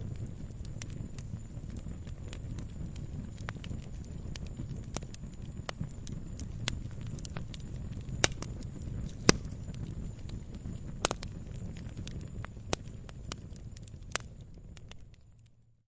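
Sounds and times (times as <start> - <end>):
firewood crackling: 0.0 - 15.7.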